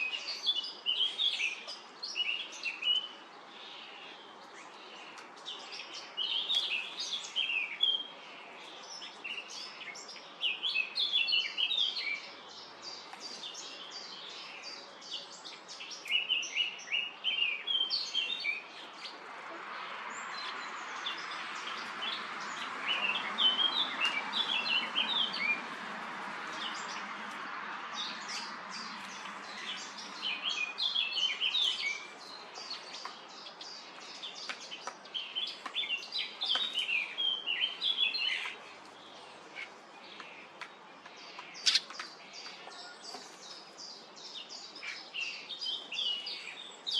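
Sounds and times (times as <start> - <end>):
starlings chirping and chattering: 19.8 - 27.4, 28.0 - 46.9.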